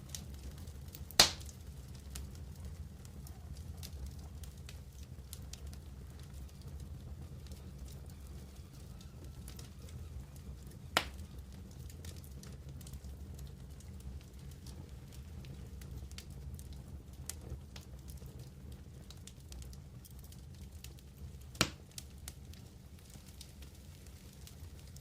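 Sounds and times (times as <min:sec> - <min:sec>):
campfire crackling: 0:00.0 - 0:25.0
sharp pop: 0:01.2 - 0:01.4.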